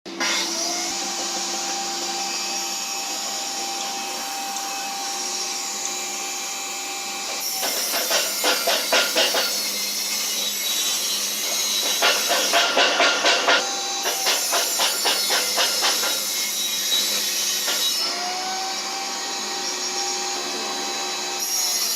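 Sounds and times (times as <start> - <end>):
power tool whining: 0.1 - 21.9
rhythmic rasping on wood: 7.6 - 9.7, 11.4 - 16.4.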